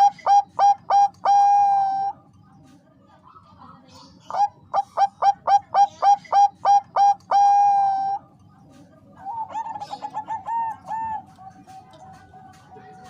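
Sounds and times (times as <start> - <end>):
dove cooing: 0.0 - 2.2, 4.3 - 8.4, 9.2 - 12.2.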